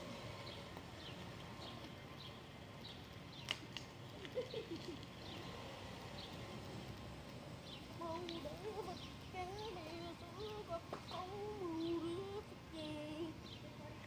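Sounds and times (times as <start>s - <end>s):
bird chirping: 7.6s - 12.4s.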